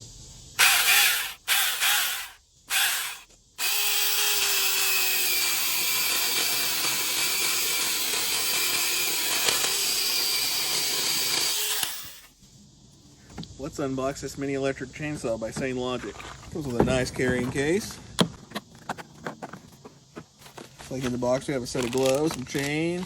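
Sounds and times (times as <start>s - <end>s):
electric chainsaw running: 0.6s - 12.3s.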